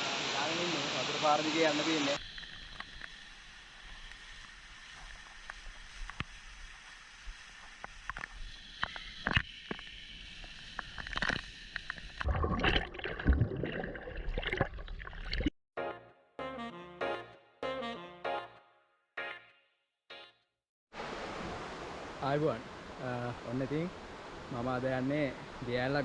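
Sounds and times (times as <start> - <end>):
stream water running: 0.0 - 15.5, 20.9 - 26.0.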